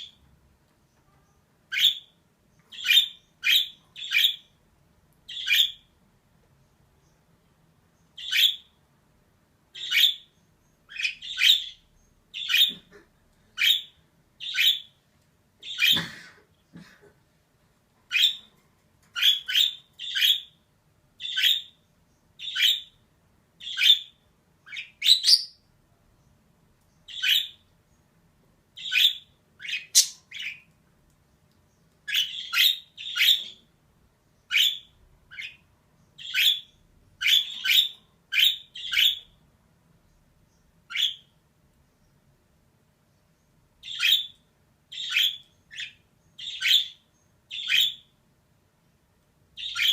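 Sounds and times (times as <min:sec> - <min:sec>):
budgerigar chirping: 0:01.7 - 0:04.5, 0:05.3 - 0:05.9, 0:08.2 - 0:08.8, 0:09.7 - 0:10.3, 0:10.9 - 0:12.9, 0:13.6 - 0:15.0, 0:18.1 - 0:18.5, 0:19.2 - 0:20.6, 0:21.2 - 0:21.8, 0:22.4 - 0:23.0, 0:23.6 - 0:25.6, 0:27.1 - 0:27.6, 0:28.8 - 0:30.7, 0:32.1 - 0:33.6, 0:34.5 - 0:35.6, 0:36.2 - 0:39.4, 0:40.9 - 0:41.3, 0:43.8 - 0:48.1, 0:49.6 - 0:49.9.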